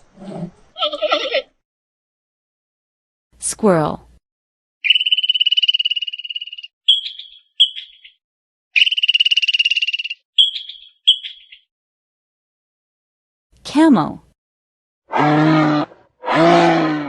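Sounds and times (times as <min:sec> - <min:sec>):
squirrel rattling trills: 0:04.8 - 0:08.2, 0:08.8 - 0:11.6
squirrel short chirps: 0:04.8 - 0:08.2, 0:08.8 - 0:11.6.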